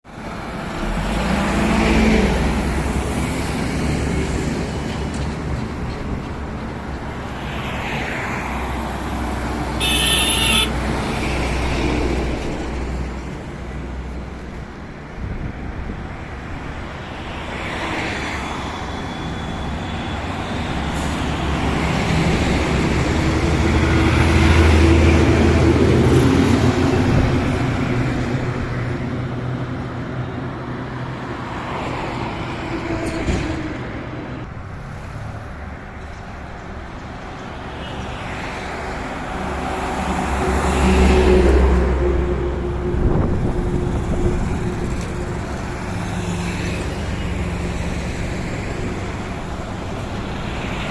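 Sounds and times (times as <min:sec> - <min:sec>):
highway road noise: 0:00.0 - 0:50.9
heavy truck engines running: 0:00.1 - 0:07.5, 0:38.6 - 0:50.9.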